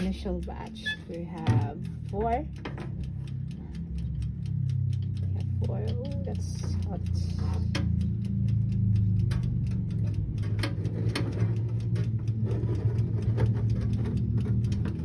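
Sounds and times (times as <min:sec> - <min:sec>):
steady low hum: 0:00.0 - 0:15.0
metal pan clicks and taps: 0:01.4 - 0:03.1.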